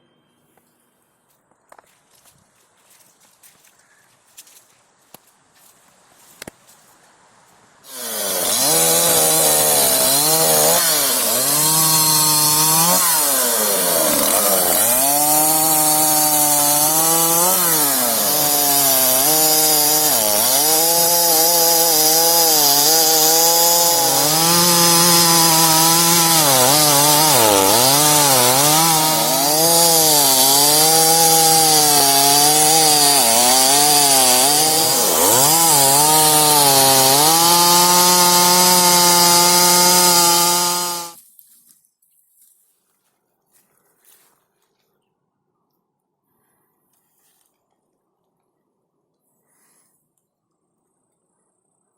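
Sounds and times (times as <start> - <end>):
chainsaw engine revving: 7.9 - 41.2.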